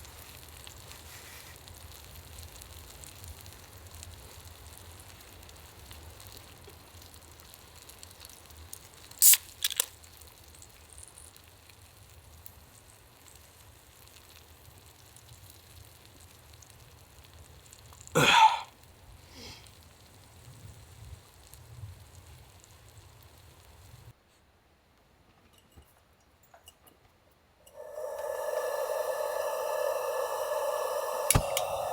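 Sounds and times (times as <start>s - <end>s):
steak sizzling on iron plate: 0.0s - 24.1s
brief burst of noise: 27.7s - 31.9s.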